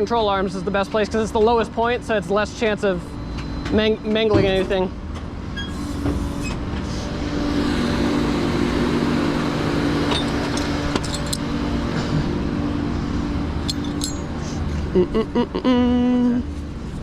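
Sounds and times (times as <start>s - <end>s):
vehicle engine running: 7.0s - 14.9s.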